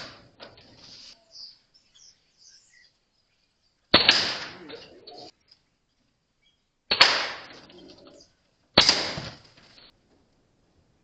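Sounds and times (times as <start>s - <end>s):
air rifle shots: 3.9s - 4.7s, 6.9s - 7.6s, 8.8s - 9.7s.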